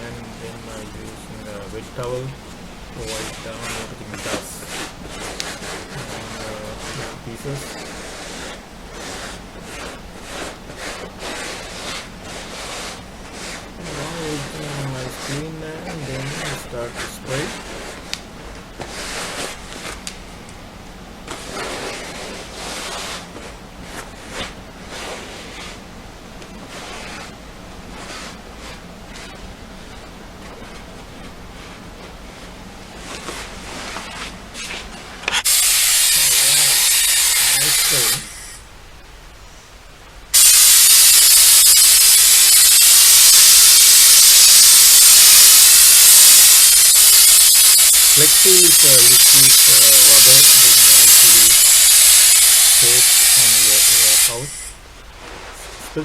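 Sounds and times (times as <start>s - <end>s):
aerosol can spraying: 35.4s - 38.6s, 40.4s - 54.8s.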